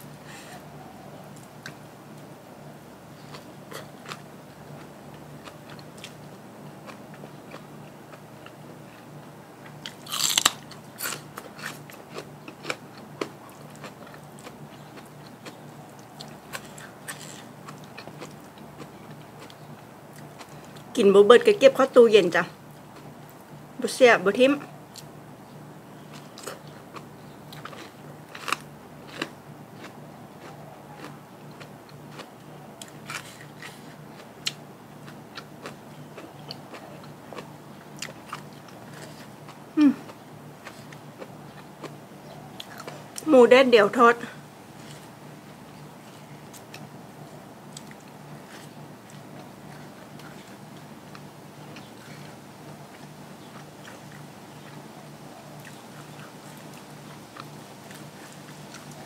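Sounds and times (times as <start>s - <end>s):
crunchy chewing: 3.1s - 20.9s, 26.0s - 43.3s, 44.7s - 59.0s
crunching bite: 9.6s - 20.5s, 26.1s - 42.0s.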